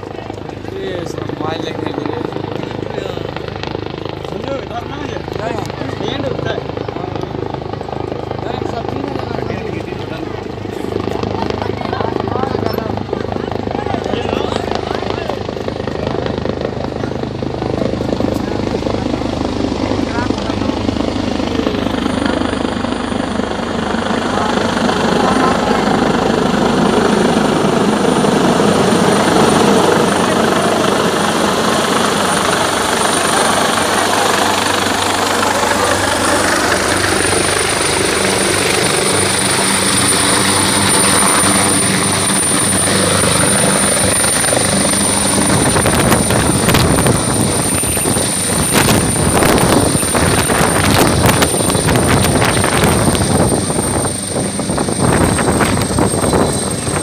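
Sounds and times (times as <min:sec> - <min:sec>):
helicopter rotor and engines: 0:00.0 - 0:57.0
high turbine whine: 0:00.0 - 0:57.0.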